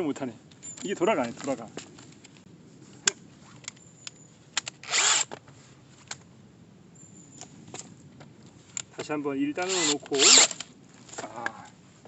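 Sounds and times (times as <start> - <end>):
short rasping drill burst: 9.7 - 10.6.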